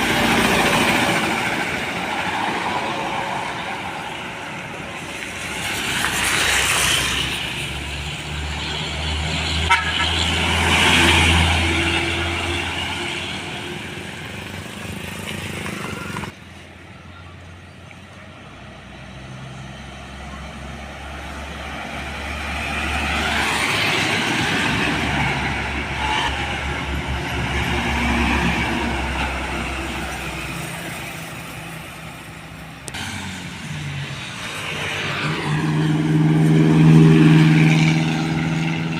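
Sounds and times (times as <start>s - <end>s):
trucks and buses driving past: 0.0s - 38.9s
vehicle horn tooting: 9.6s - 10.3s.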